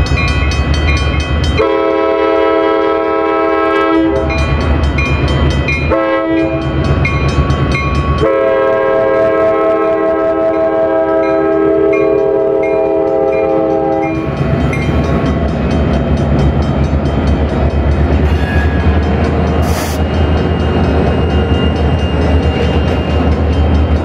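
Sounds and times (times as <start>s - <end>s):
diesel locomotives rumbling past: 0.0s - 24.0s
locomotive air horn: 1.6s - 4.3s, 5.9s - 6.6s, 8.2s - 14.1s.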